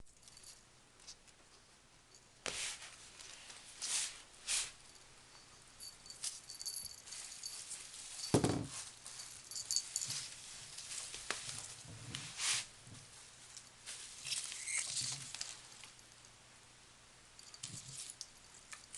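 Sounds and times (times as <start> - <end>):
rustling and light clicking: 4.9 - 16.4, 17.4 - 18.9
dull thump: 8.3 - 8.8.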